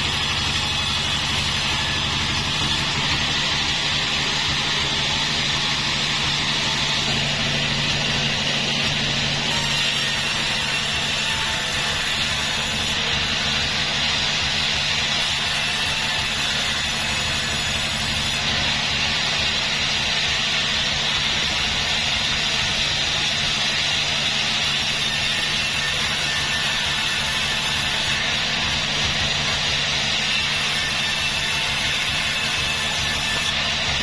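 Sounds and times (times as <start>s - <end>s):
low engine drone: 0.0s - 9.5s
saw hissing: 0.0s - 34.0s.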